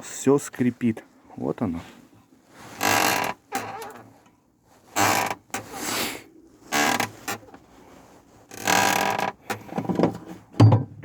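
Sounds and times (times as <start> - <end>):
car seat creaking: 2.6 - 4.2, 4.8 - 6.0, 6.6 - 7.7, 8.4 - 10.4.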